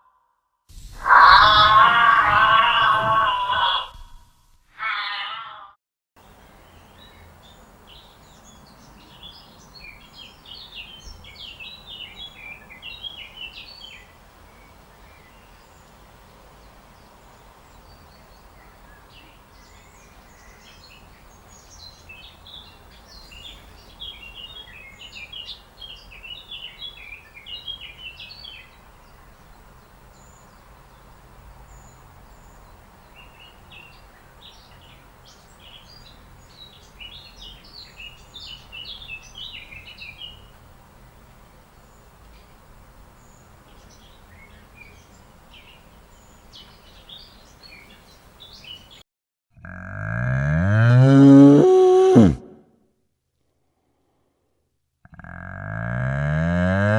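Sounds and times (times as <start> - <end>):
low background noise: 6.2 - 49.0.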